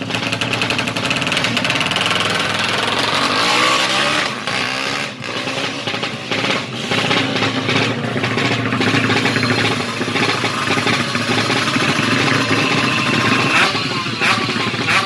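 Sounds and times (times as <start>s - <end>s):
motorcycle engine running: 0.0s - 15.0s
steady high tone: 8.9s - 14.8s.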